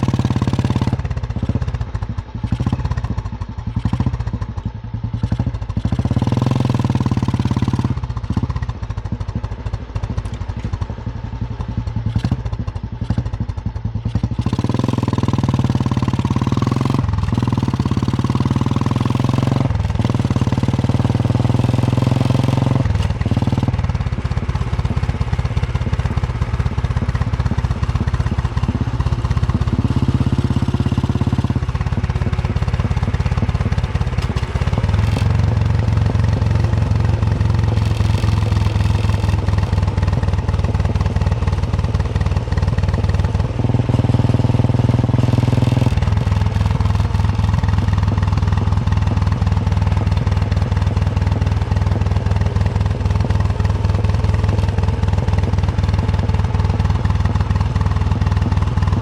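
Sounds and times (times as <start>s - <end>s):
motorcycle engine thumping: 0.0s - 59.0s.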